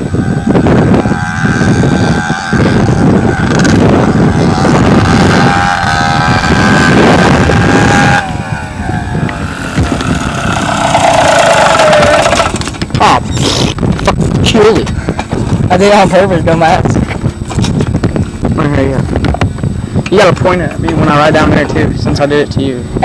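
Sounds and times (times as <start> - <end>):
dirt bike engine revving: 0.0 - 13.9
wind buffeting microphone: 0.0 - 23.0.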